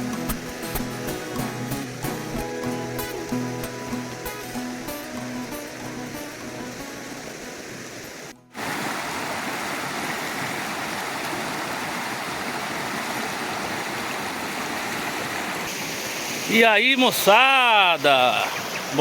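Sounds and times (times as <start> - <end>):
music: 0.0 - 8.6
creek rushing at waterfall: 0.0 - 19.0.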